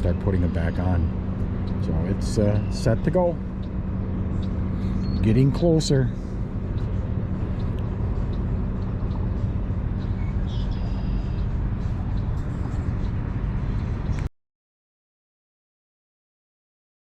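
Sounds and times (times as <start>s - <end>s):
boat engine running: 0.0s - 14.3s.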